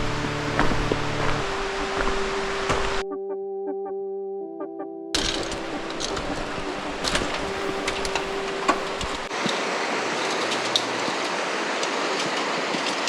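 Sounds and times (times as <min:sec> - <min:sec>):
stream rushing: 0:05.4 - 0:13.0.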